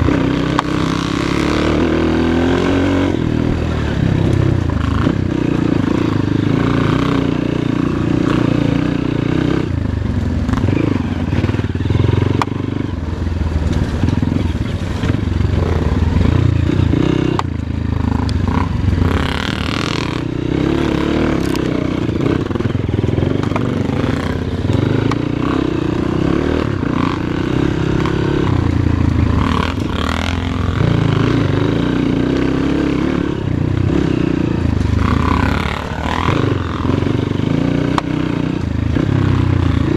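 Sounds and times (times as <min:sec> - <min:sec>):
motorcycle engine revving: 0:00.0 - 0:39.9
sharp clicks and knocks: 0:23.0 - 0:25.3, 0:37.9 - 0:38.2.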